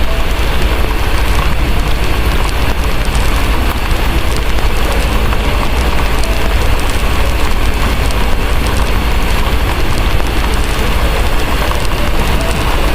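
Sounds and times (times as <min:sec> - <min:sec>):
heavy rain: 0:00.0 - 0:12.9
low rumble: 0:00.0 - 0:12.9
wood fire crackling: 0:00.0 - 0:12.9.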